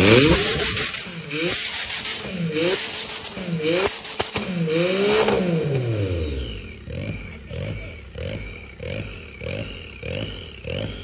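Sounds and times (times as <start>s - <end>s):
car engine uneven idle: 5.8s - 11.0s.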